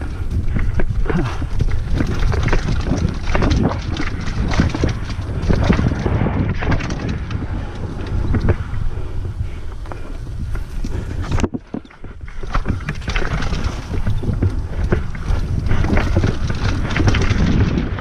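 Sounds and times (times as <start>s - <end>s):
bike rattles and knocks: 0.0s - 18.0s
wind rumble on microphone: 0.0s - 18.0s.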